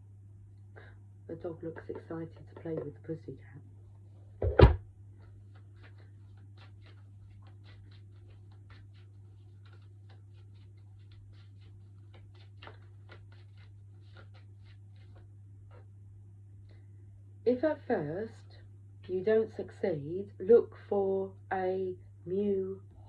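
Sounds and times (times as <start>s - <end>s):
steady low hum: 0.0s - 23.0s
sharp knock: 4.4s - 4.8s.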